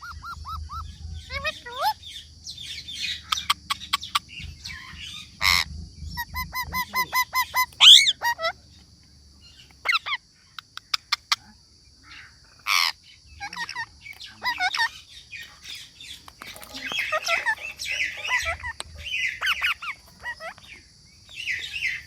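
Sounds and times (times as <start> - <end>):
parrot chirps: 0.0 - 8.6, 12.1 - 22.0
parrot squawking: 4.7 - 8.6, 12.6 - 15.7, 16.4 - 20.7.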